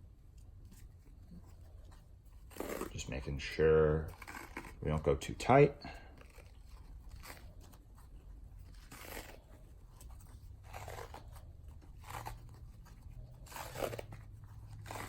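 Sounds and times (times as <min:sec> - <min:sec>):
athletic tape crinkling: 0:00.0 - 0:15.0.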